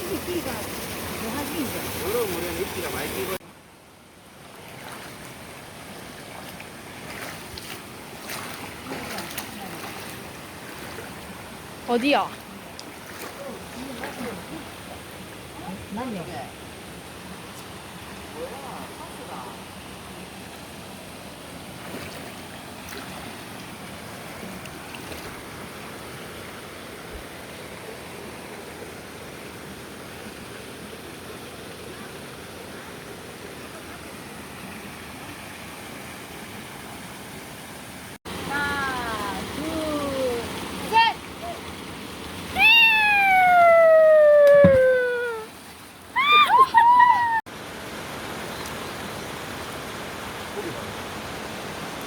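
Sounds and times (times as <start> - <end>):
water rushing over rocks: 0.0 - 3.4, 4.4 - 31.2, 38.0 - 52.0.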